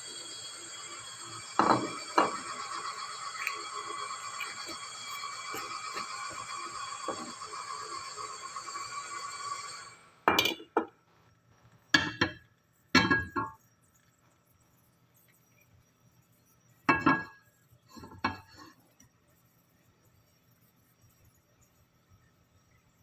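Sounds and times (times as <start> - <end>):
dishes clinking: 1.6 - 2.8, 10.3 - 10.9.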